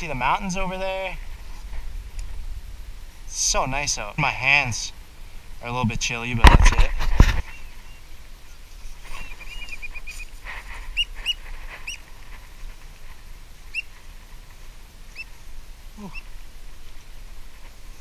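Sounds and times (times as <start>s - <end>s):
birds whistled calls: 7.4s - 10.3s, 10.9s - 12.0s, 15.1s - 15.4s, 16.0s - 16.3s
bird piping notes: 7.4s - 12.0s, 15.1s - 15.4s, 16.0s - 16.4s.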